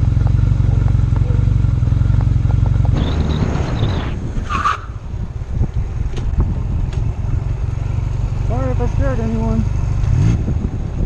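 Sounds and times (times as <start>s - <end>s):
motorcycle engine rumbling low: 0.0s - 11.0s
tyre squeal: 2.9s - 5.0s
rush of noise: 2.9s - 6.7s.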